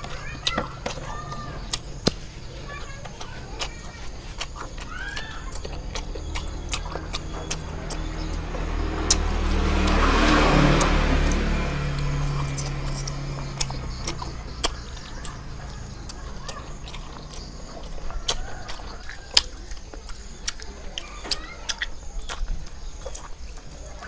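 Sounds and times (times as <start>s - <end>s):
chewing and biting mouth sounds: 0.0s - 24.0s
passing car engine: 4.9s - 19.6s.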